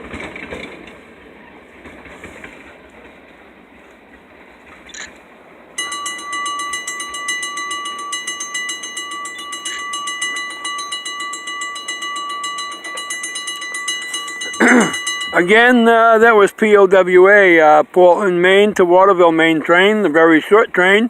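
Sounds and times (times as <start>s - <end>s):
crossing warning bell ringing: 5.8s - 16.8s.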